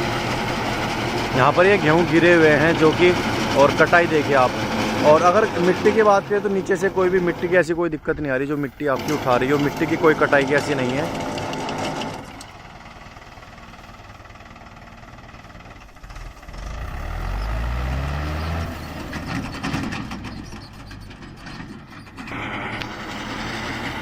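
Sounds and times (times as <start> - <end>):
tractor engine revving: 0.0 - 24.0.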